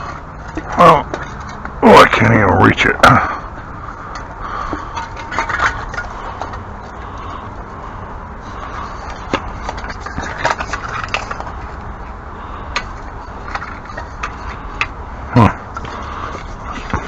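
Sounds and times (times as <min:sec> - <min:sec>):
low background rumble: 0:00.0 - 0:17.0
objects knocking and clicking: 0:04.1 - 0:07.3, 0:08.9 - 0:11.9, 0:12.7 - 0:17.0
person grunting: 0:15.3 - 0:15.6.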